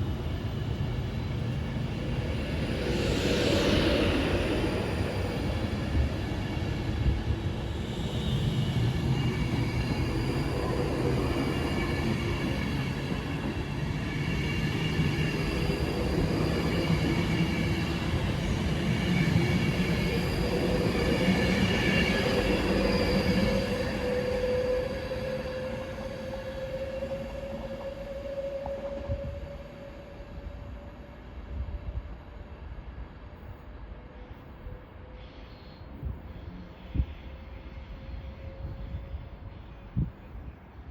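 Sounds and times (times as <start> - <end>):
train rumbling: 0.0 - 40.9
train whining tones: 1.9 - 32.9.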